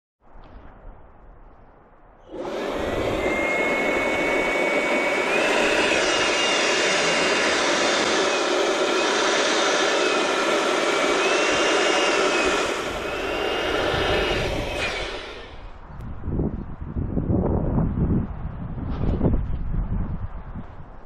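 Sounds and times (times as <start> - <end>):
balloon inflator motor whine: 2.3 - 15.8.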